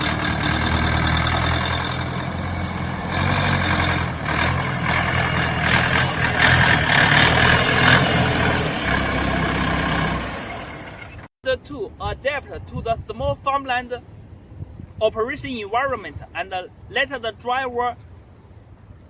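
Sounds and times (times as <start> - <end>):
tractor diesel engine humming: 0.0 - 11.3.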